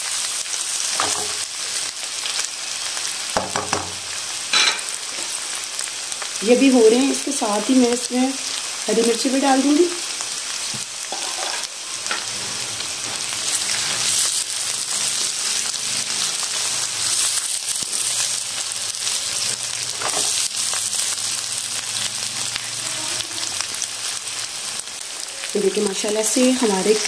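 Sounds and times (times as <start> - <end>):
vegetables sizzling in oil: 0.0 - 27.0
spatula scraping while stirring: 11.1 - 14.4.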